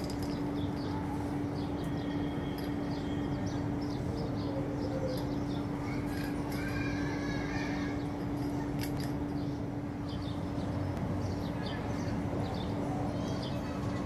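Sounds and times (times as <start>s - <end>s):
constant low hum: 0.0s - 14.0s.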